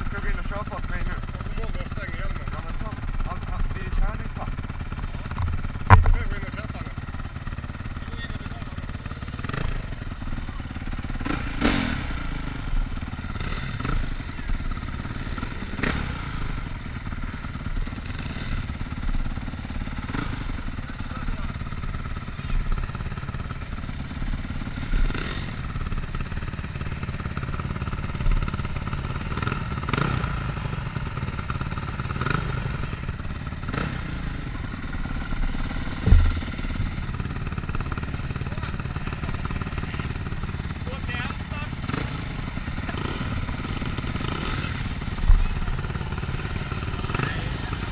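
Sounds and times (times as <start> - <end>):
motorcycle engine running: 0.0 - 47.9
sharp loud thump: 5.3 - 6.3, 35.8 - 37.0
knocks: 36.0 - 36.6.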